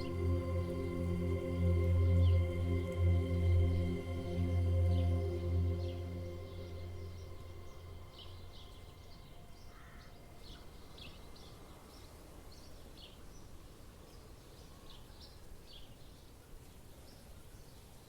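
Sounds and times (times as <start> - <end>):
faint low rumble: 0.0 - 9.6.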